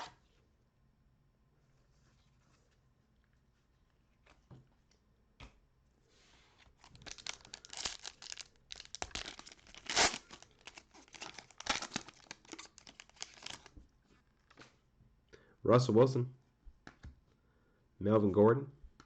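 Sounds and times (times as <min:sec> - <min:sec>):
wrapper tearing and crinkling: 0:06.8 - 0:13.7.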